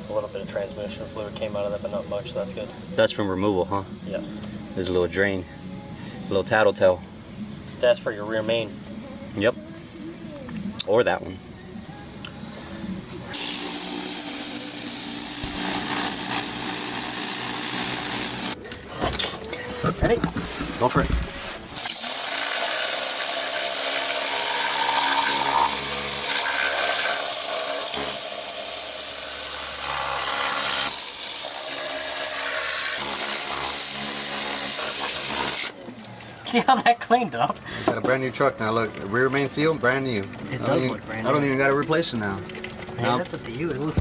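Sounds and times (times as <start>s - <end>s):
cleaning spray hissing: 13.3s - 18.6s.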